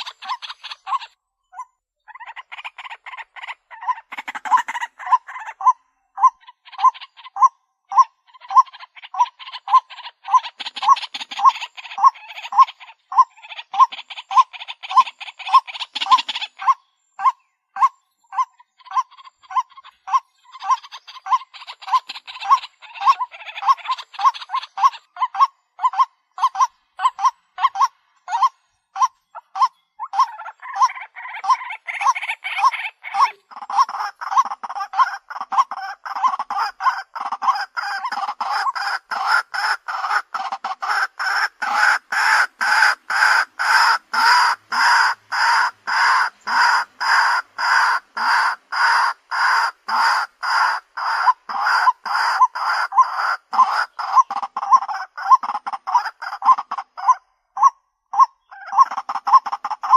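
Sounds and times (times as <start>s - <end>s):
waterhen calling hoarse notes: 0.0s - 59.9s.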